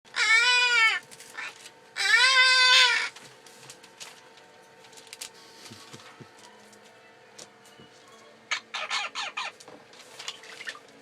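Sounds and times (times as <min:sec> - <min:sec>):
parrot meow call: 0:00.1 - 0:03.1.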